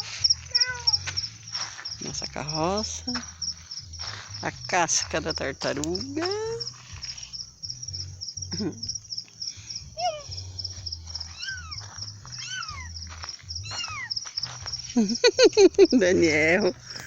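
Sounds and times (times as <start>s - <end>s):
crickets chirring: 0.0s - 17.0s
short arching calls: 13.6s - 14.2s.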